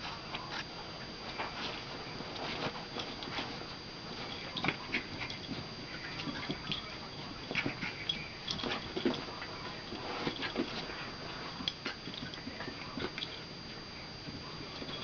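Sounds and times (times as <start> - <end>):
puppies scuffling: 0.0 - 15.0
paws and claws clicking: 4.2 - 13.4.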